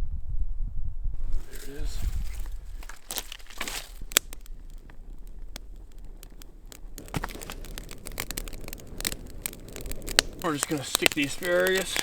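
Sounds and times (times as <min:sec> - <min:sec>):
short rustle: 0:01.2 - 0:07.9
campfire crackling and popping: 0:01.2 - 0:12.0.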